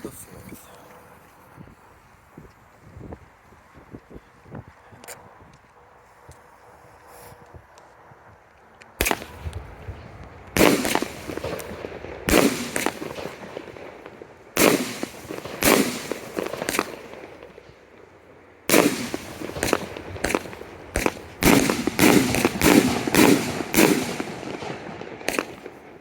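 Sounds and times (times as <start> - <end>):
crackling firework pops: 8.8 - 17.8, 18.7 - 26.0
firework bangs: 9.0 - 26.0.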